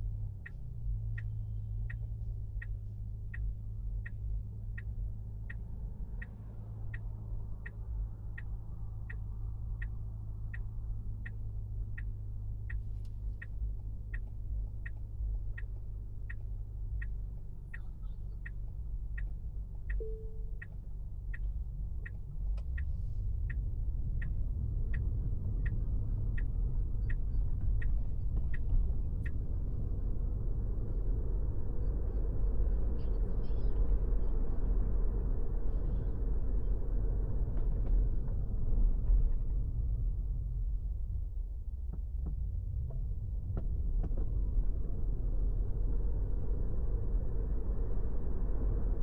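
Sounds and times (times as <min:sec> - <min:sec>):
turn signal ticking: 0:00.0 - 0:33.9
car engine and road rumble: 0:00.0 - 0:49.0.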